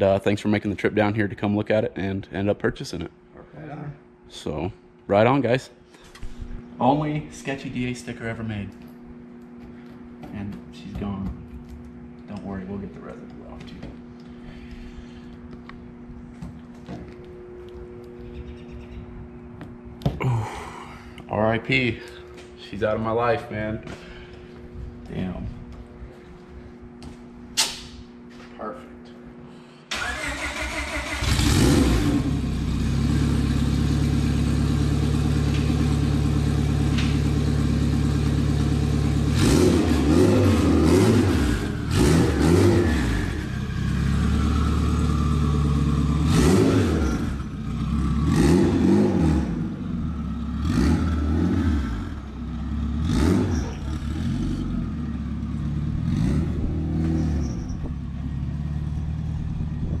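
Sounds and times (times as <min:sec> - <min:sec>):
car engine idling and revving: 0:31.1 - 1:00.0.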